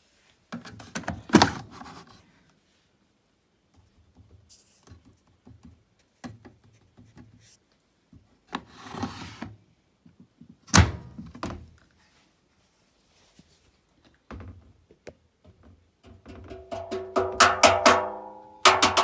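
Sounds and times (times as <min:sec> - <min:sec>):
rustle: 0:11.8 - 0:14.1.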